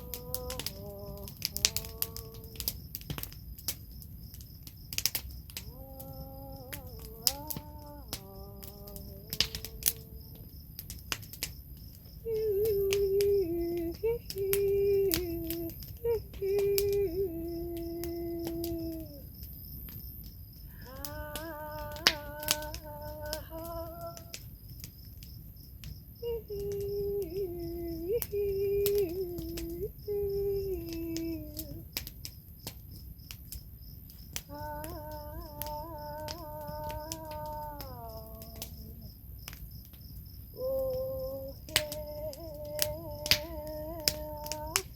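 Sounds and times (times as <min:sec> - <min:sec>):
woman humming held notes: 0:00.0 - 0:02.9, 0:05.6 - 0:10.5, 0:12.2 - 0:19.4, 0:20.8 - 0:24.5, 0:26.2 - 0:31.9, 0:34.4 - 0:39.2, 0:40.6 - 0:44.9
crickets chirping: 0:00.0 - 0:44.9.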